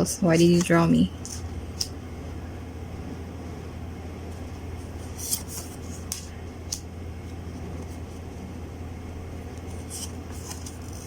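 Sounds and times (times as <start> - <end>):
low room hum: 0.0 - 11.0
cards swishing and tapping: 5.0 - 8.1.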